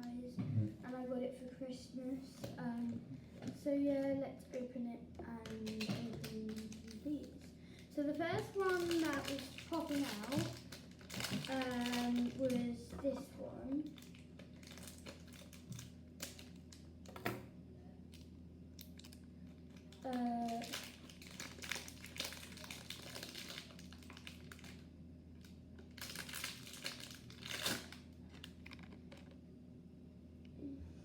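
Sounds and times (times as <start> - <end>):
packaging crinkling and rustling: 5.3 - 17.2, 18.2 - 29.4.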